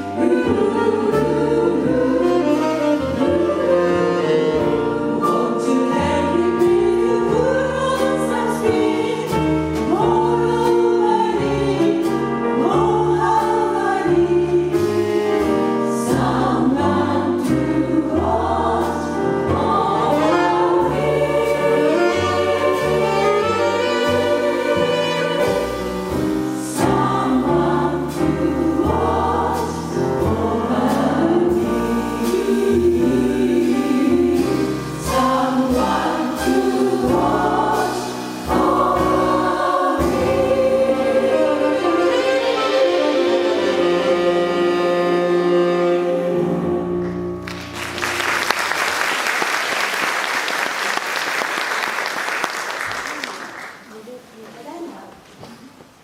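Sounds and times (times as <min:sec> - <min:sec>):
chorus singing in harmony: 0:00.0 - 0:47.4
piano bass and drums: 0:00.0 - 0:48.5
audience applauding: 0:47.4 - 0:54.0.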